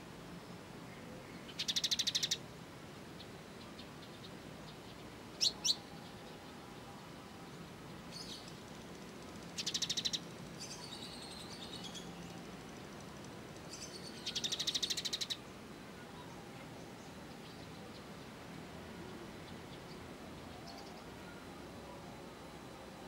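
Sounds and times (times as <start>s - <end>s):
songbird buzzing trills: 7.8s - 15.5s.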